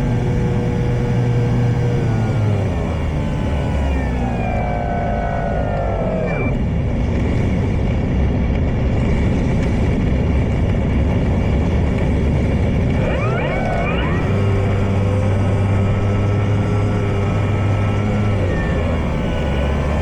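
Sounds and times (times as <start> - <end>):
model plane motor whine: 13.0 - 20.0.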